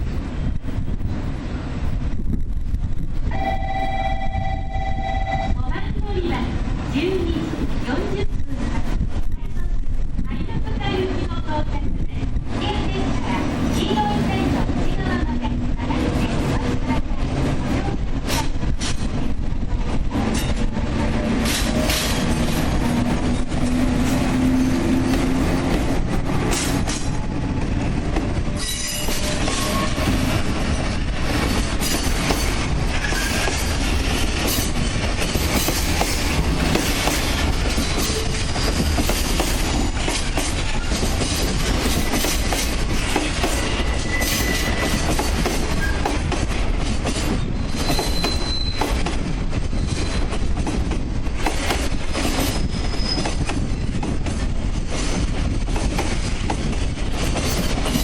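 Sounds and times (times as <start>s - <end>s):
train wheels clacking over joints: 20.0s - 58.0s
high wheel squeals: 43.6s - 45.1s, 47.4s - 49.0s, 49.7s - 50.4s, 52.2s - 53.9s.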